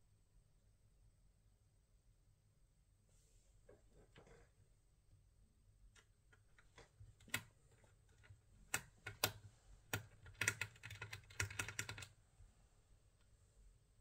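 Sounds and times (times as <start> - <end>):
laptop keyboard typing: 6.0 - 12.2.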